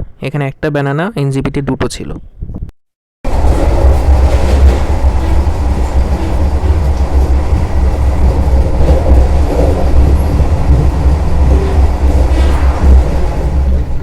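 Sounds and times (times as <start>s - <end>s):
train clatter: 3.3s - 14.0s
train wheels rumbling on rails: 3.3s - 14.0s.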